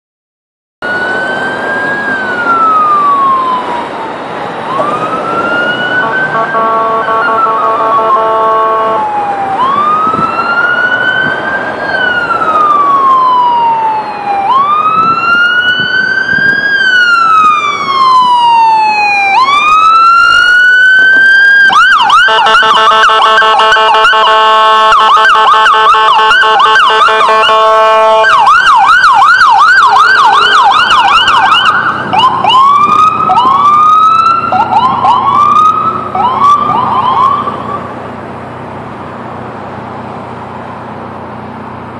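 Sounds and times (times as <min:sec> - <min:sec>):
emergency sirens wailing and yelping: 0:00.8 - 0:41.9
long horn blast: 0:06.0 - 0:09.1, 0:22.3 - 0:28.3.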